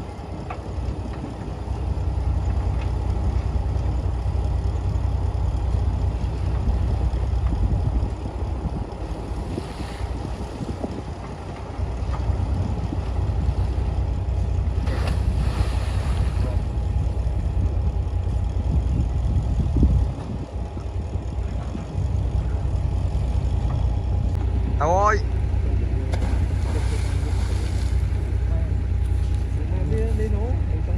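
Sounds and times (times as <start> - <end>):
diesel machinery low rumble: 0.0 - 30.9.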